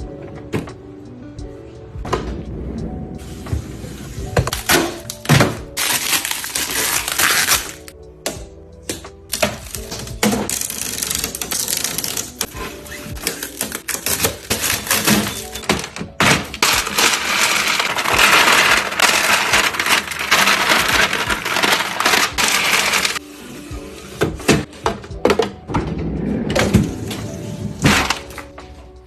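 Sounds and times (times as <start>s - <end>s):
small hard objects clattering: 5.8s - 7.9s, 13.4s - 23.2s.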